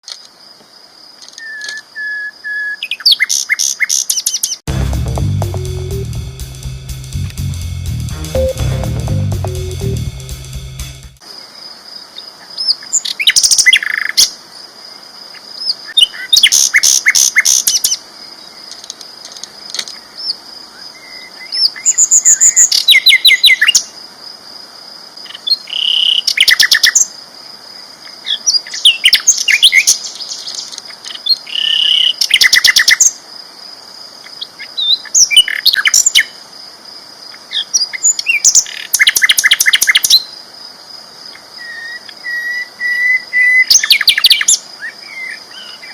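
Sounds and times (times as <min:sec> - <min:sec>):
steady high whine: 0:04.7 - 0:11.2.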